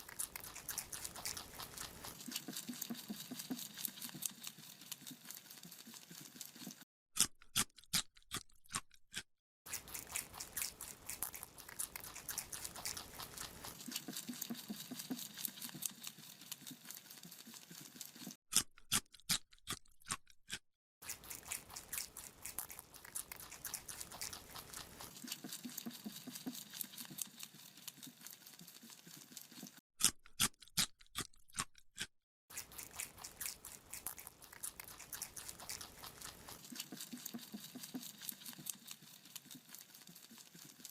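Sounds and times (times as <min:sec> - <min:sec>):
rabbit crunching a carrot: 0:00.0 - 0:40.9.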